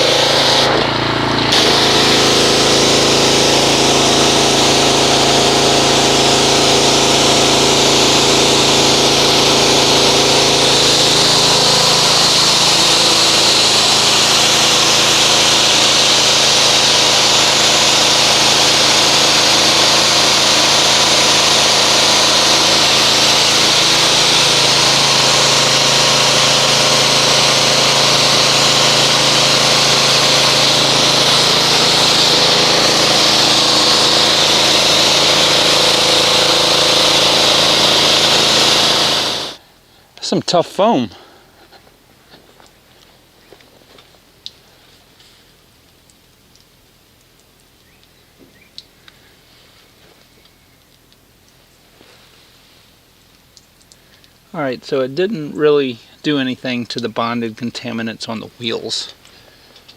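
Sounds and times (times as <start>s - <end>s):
water jet hissing: 0.0s - 39.6s
pressure washer motor humming: 0.0s - 39.7s.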